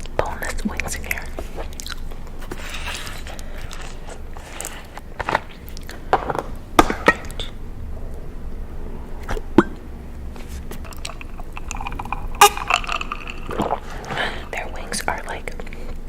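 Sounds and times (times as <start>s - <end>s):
chewing food: 0.0s - 2.5s, 3.2s - 7.5s, 9.2s - 16.0s
low steady hum: 0.0s - 16.0s
sharp mouth sounds: 10.5s - 15.1s.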